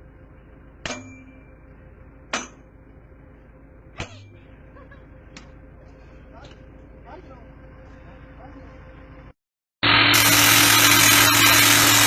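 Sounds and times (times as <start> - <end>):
steady low hum: 0.0 - 12.0
sharp ringing knocks: 0.8 - 1.6, 2.3 - 2.7.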